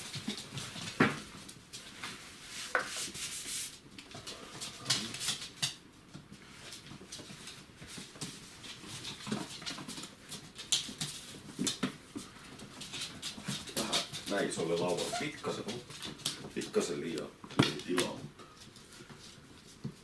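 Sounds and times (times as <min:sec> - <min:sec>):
puppies clicking and scuffling: 0:00.0 - 0:20.0.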